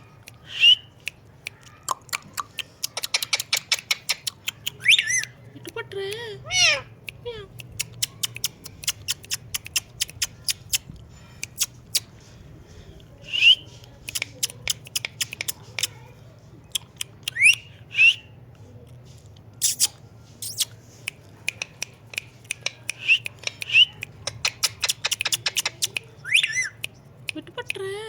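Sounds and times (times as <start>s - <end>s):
parrot whistled chirps: 0.5s - 0.9s, 4.8s - 5.3s, 17.3s - 18.3s, 26.2s - 26.8s
sharp irregular clicks: 1.0s - 5.4s, 7.0s - 12.0s, 14.0s - 16.0s, 19.6s - 27.0s
parrot squawks: 4.8s - 5.3s, 6.5s - 6.9s, 26.2s - 26.8s.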